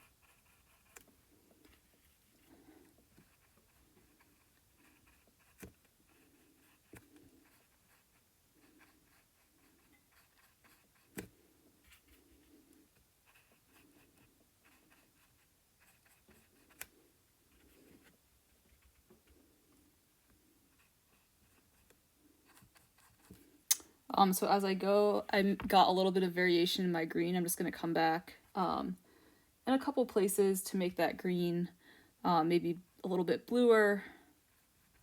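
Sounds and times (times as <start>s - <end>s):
paintbrush dabbing and stroking: 0.0s - 23.5s.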